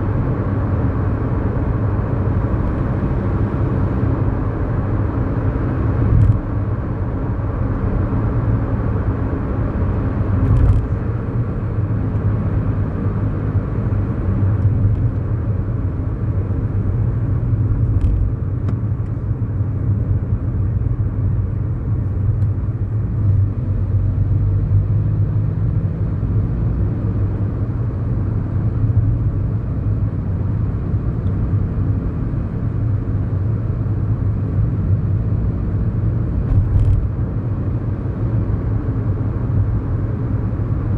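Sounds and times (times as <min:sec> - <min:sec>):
car engine cruising: 0:00.0 - 0:40.9
tyre and road rumble: 0:10.2 - 0:12.4, 0:36.2 - 0:37.4.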